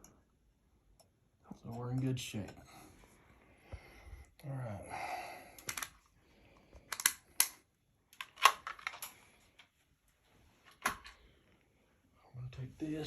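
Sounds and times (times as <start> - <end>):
small hardware clicking and rattling: 6.8 - 9.7.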